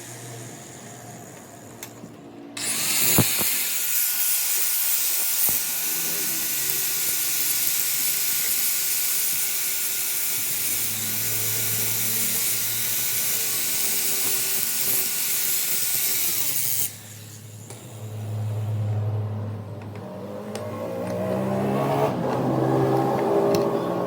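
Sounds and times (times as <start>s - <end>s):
power tool hissing and whining: 0.0s - 2.0s, 2.6s - 19.2s
low engine hum: 18.0s - 24.0s.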